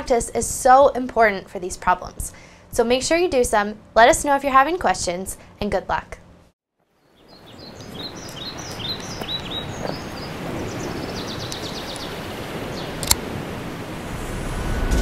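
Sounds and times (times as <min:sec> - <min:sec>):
bird chirping and trilling: 0:07.0 - 0:13.0.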